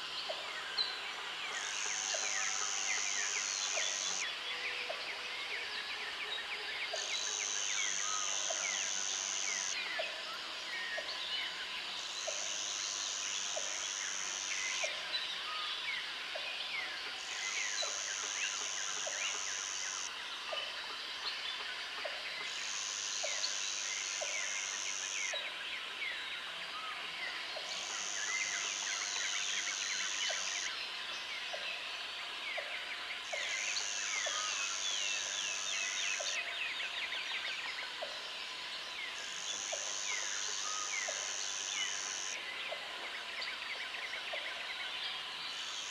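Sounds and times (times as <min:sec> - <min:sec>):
steady insect drone: 0:00.0 - 0:45.9
high insect buzz: 0:07.1 - 0:09.8, 0:22.5 - 0:25.3, 0:39.2 - 0:42.4.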